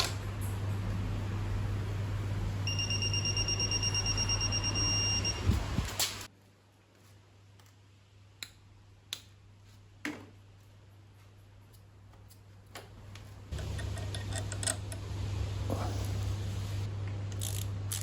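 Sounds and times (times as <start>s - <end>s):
steady low hum: 0.1s - 5.9s.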